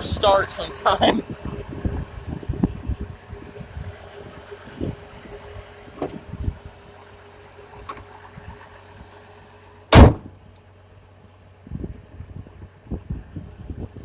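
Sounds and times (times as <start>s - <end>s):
car engine idling: 0.0s - 14.0s
loud slam: 9.9s - 10.3s.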